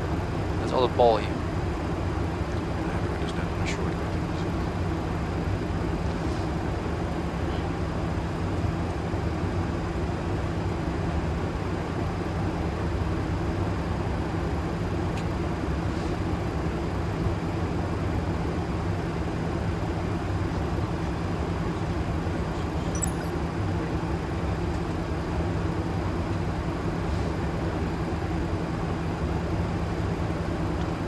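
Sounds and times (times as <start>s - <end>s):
low hum: 22.8s - 23.3s.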